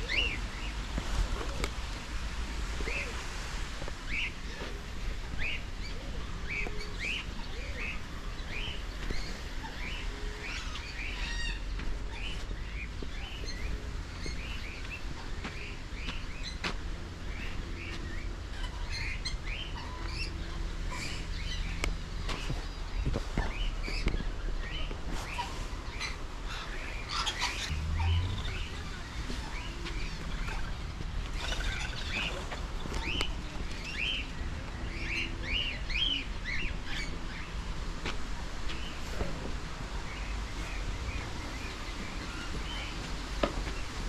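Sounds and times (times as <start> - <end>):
birds chirping: 4.1 - 37.9
steady low rumble: 27.5 - 36.7.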